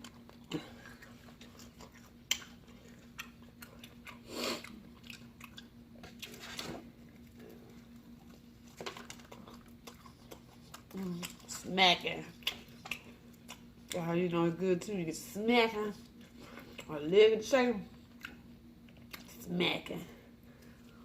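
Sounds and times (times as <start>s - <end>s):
chewing and lip-smacking: 0.0s - 14.0s, 16.0s - 17.0s, 17.9s - 19.4s.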